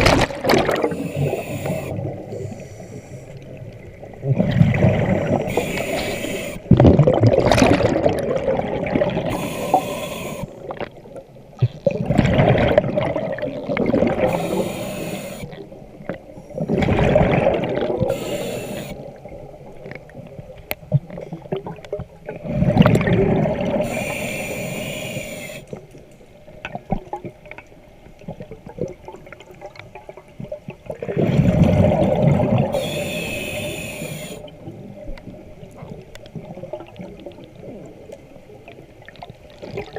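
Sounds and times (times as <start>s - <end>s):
exhaled bubbles rumbling: 0.0s - 2.6s, 3.4s - 9.8s, 10.5s - 24.1s, 26.5s - 33.4s, 34.4s - 39.9s
regulator inhale hiss: 0.8s - 3.5s, 5.4s - 6.7s, 9.3s - 10.7s, 14.3s - 15.5s, 18.1s - 19.2s, 23.8s - 25.8s, 32.7s - 34.6s.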